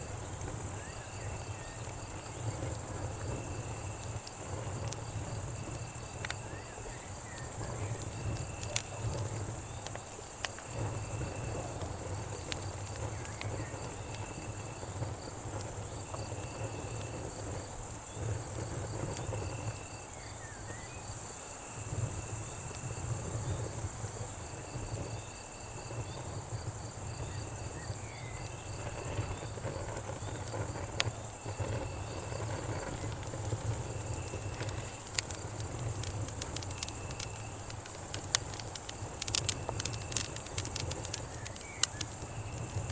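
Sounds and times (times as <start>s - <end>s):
campfire crackling: 0.0s - 42.9s
crickets and cicadas chorus: 0.0s - 42.9s
fast pulsing insect trill: 0.0s - 42.9s
insect short chirp: 5.2s - 8.7s, 19.4s - 21.8s, 26.9s - 29.4s, 31.2s - 42.9s.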